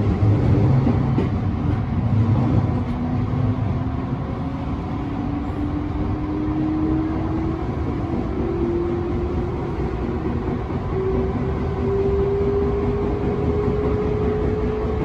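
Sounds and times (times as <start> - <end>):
train wheels rumbling on rails: 0.0 - 15.0
train motor whine: 4.3 - 13.1.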